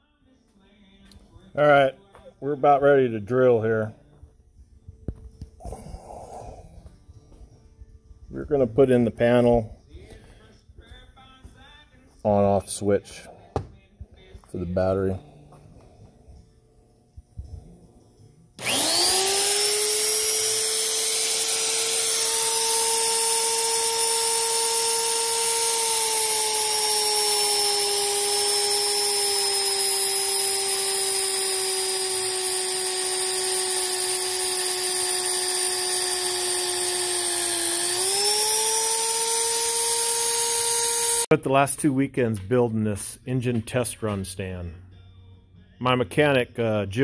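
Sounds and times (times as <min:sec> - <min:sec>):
electric drill whining: 0:18.6 - 0:41.3.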